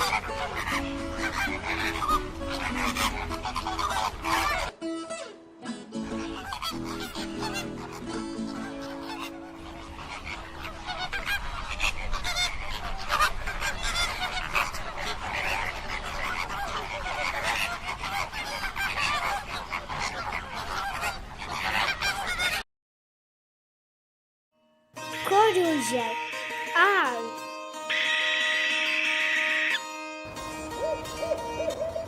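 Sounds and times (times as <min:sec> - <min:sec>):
flock of birds honking: 0:00.0 - 0:05.4, 0:06.0 - 0:22.6, 0:25.4 - 0:26.8, 0:27.8 - 0:32.0.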